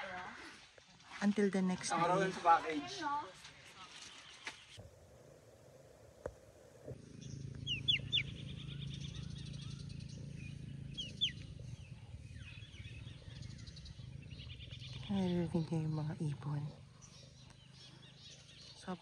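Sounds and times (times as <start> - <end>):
steady low hum: 4.8 - 18.8
birds chirping: 6.6 - 19.0.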